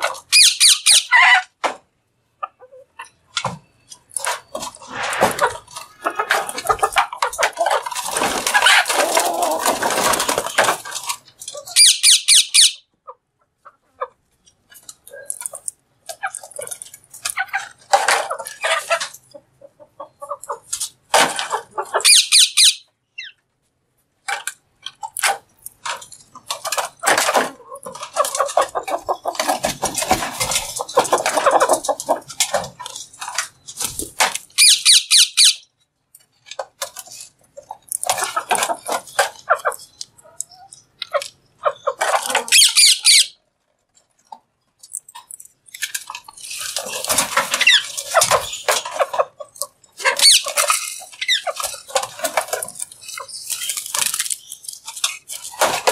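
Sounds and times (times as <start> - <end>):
parrot chattering: 11.7 - 12.8, 22.0 - 23.3, 40.5 - 43.4, 50.0 - 50.6
parrot screeching: 11.8 - 12.8, 42.5 - 43.4.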